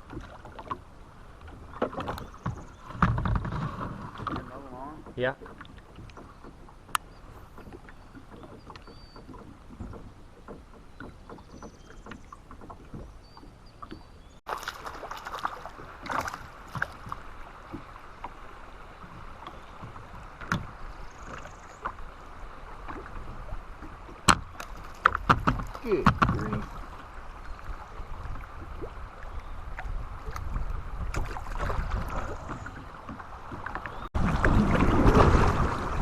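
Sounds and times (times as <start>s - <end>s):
moving water: 0.0s - 36.0s
knocks against kayak hull: 24.2s - 26.8s.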